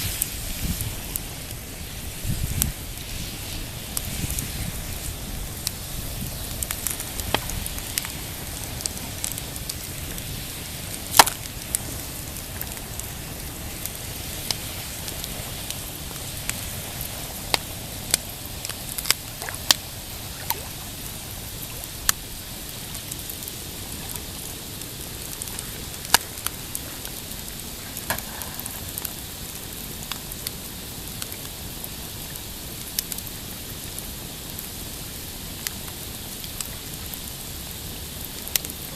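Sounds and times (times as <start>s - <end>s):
waves lapping on rocky shore: 0.0s - 30.6s
campfire crackling and popping: 0.0s - 38.9s.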